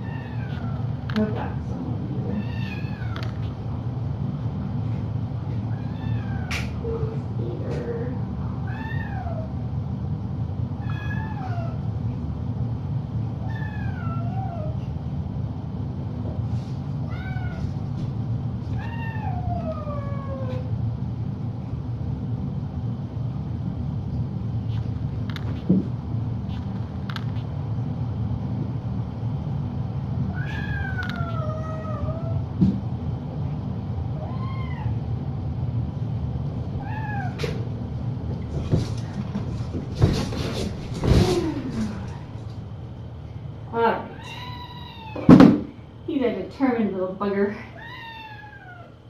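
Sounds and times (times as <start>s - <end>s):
cat meowing: 0.0s - 0.8s, 2.3s - 3.4s, 5.7s - 6.7s, 8.6s - 9.5s, 10.8s - 11.8s, 13.4s - 14.8s, 17.1s - 17.7s, 18.7s - 20.7s, 30.3s - 32.4s, 34.2s - 35.0s, 36.8s - 37.5s, 44.1s - 45.4s, 47.8s - 49.0s
low hum: 0.0s - 47.7s
knocks and rustles: 38.4s - 42.2s.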